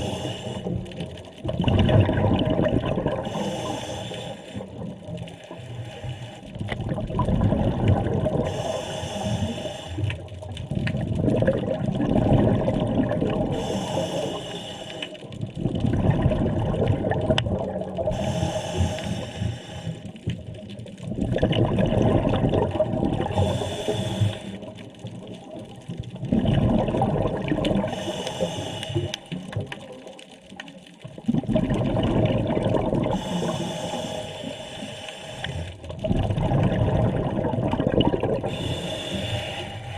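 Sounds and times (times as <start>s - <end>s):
regulator inhale hiss: 0.0s - 0.8s, 3.2s - 4.7s, 5.4s - 6.5s, 8.4s - 10.2s, 13.5s - 15.2s, 18.1s - 20.2s, 23.3s - 24.8s, 27.9s - 29.4s, 33.1s - 35.8s, 38.5s - 39.9s
exhaled air bubbling: 0.0s - 39.9s.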